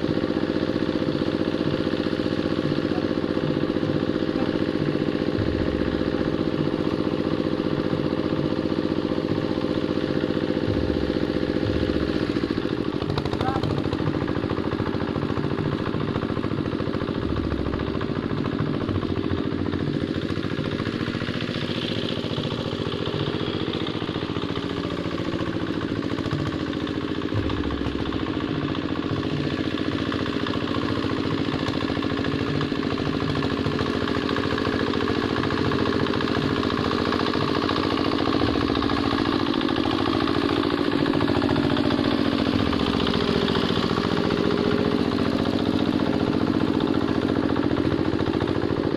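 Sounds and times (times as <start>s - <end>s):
diesel engine chugging: 0.0s - 48.9s.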